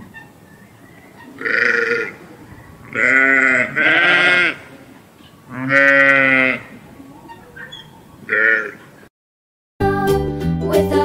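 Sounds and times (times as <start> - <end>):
sheep bleating: 1.3 - 2.2, 2.9 - 4.8, 5.5 - 6.7, 8.3 - 8.8.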